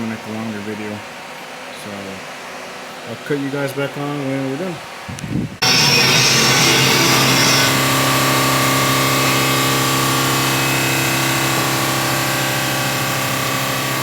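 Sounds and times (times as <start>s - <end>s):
power sander running: 5.6s - 14.0s.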